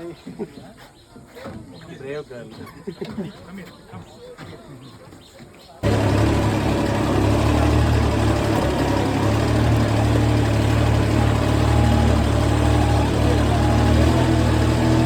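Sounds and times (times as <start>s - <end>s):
engine idling with low hum: 5.8s - 15.0s.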